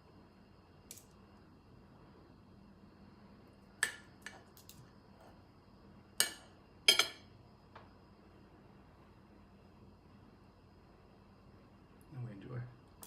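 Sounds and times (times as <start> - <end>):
cutlery clinking against a plate: 6.2 - 7.3.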